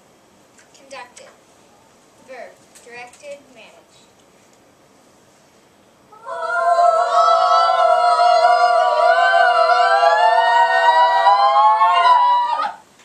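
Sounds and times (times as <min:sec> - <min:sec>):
high voices singing held chord: 0:06.1 - 0:12.6.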